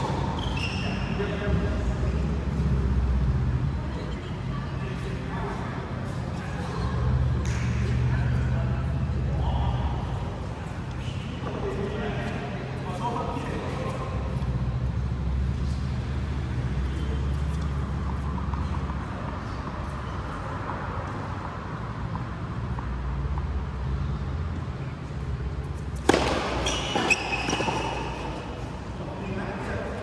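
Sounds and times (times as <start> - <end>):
shoe squeaks on a court: 0.0 - 22.2, 25.6 - 29.0
ball strikes: 26.0 - 28.4.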